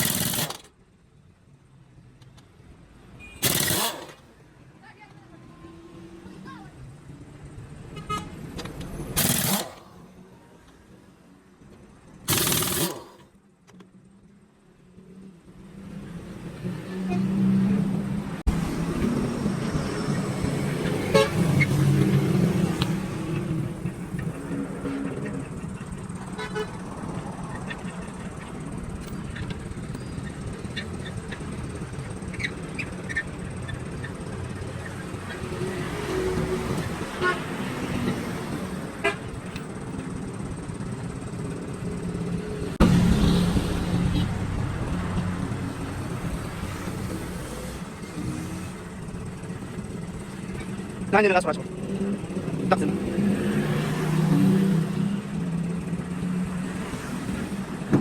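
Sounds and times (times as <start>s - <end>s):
vehicle engine humming: 3.2s - 58.0s
vehicle horn toots: 21.0s - 21.7s, 24.5s - 25.4s, 26.3s - 26.9s, 37.1s - 37.6s.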